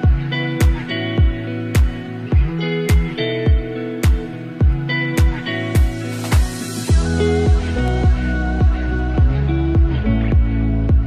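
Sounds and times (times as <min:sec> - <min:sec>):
deep kick drum: 0:00.0 - 0:11.0
electronic beat: 0:00.0 - 0:11.0
plucked guitar notes: 0:00.0 - 0:11.0.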